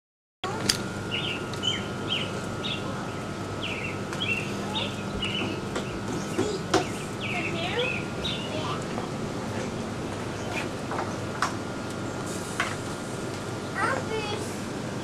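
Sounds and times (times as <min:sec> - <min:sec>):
songbird chirping: 0:01.1 - 0:08.7.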